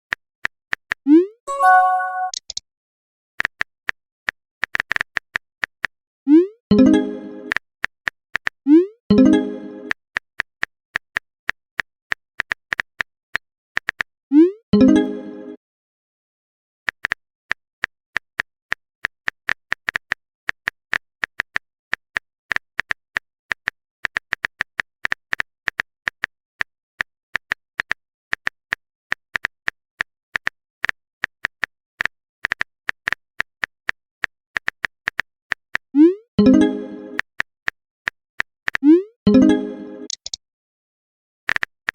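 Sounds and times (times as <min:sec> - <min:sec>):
phone keyboard typing clicks: 0:01.6 - 0:02.6, 0:40.1 - 0:40.4.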